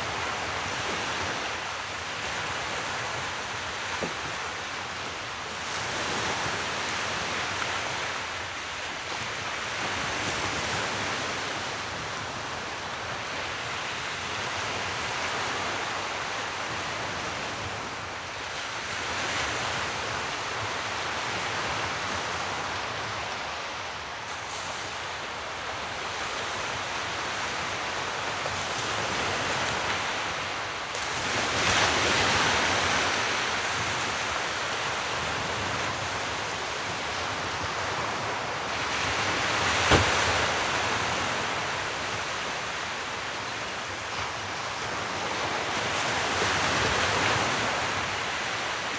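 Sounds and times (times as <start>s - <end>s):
sea waves washing in: 24.3s - 48.9s.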